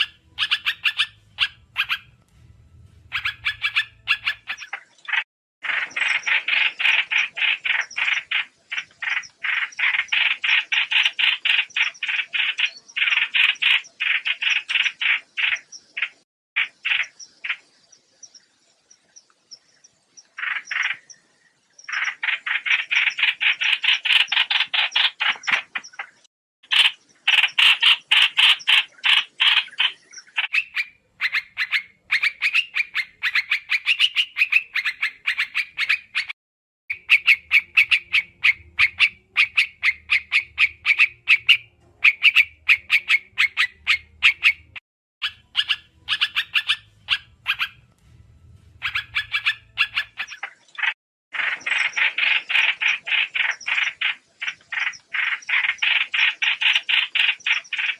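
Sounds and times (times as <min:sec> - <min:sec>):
faint low hum: 0:01.1 - 0:04.4, 0:45.6 - 0:50.0.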